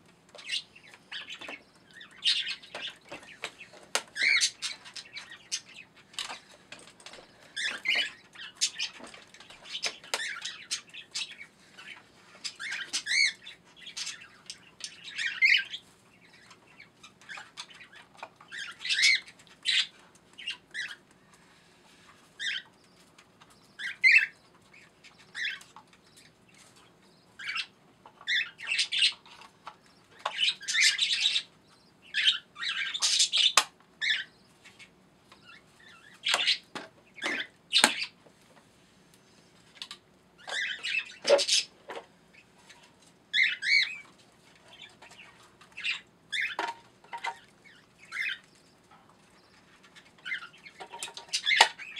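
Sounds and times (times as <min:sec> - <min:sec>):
pet birds chirping and squawking: 0:00.3 - 0:38.3, 0:39.3 - 0:51.9.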